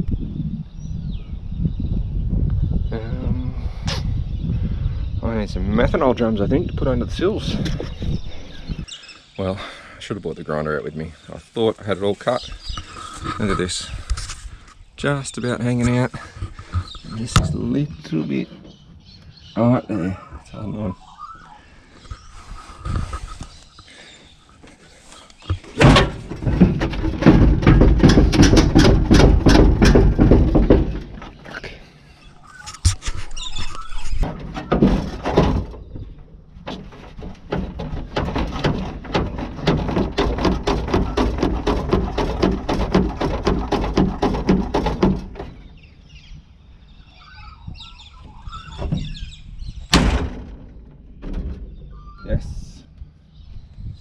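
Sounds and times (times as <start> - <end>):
sharp bang: 49.9 - 51.6.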